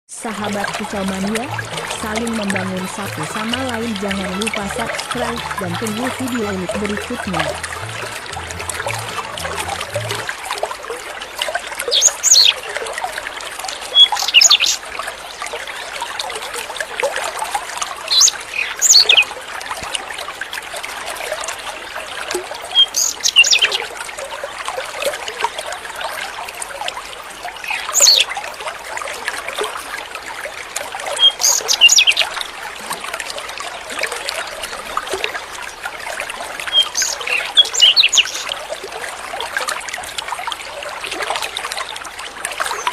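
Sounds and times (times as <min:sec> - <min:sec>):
trickle of running water: 0:00.3 - 0:42.9
songbird singing: 0:36.7 - 0:38.5.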